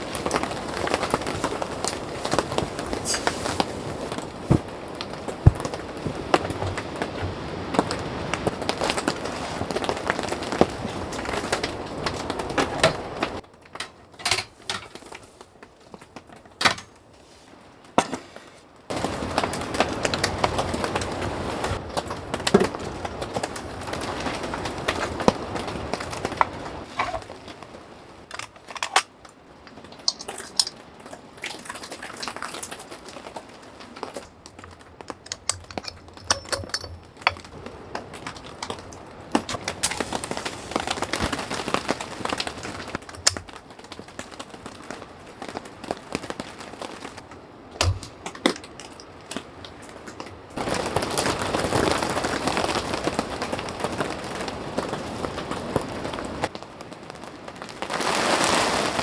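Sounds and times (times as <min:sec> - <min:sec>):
steady hiss: 0:00.0 - 0:08.5
sharp crackles and ticks: 0:28.2 - 0:53.6.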